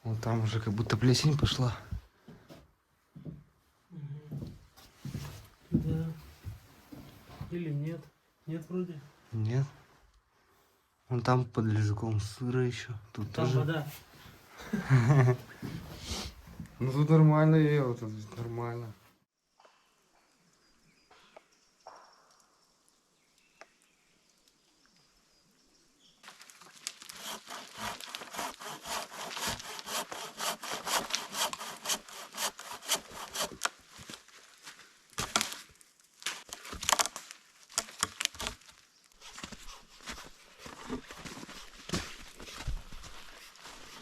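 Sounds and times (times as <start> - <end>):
fast rhythmic rasping strokes: 27.2 - 33.5.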